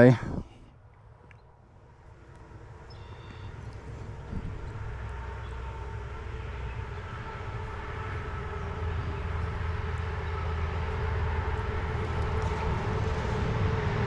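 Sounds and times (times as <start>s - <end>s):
heavy vehicle rumbling past: 1.6s - 14.0s.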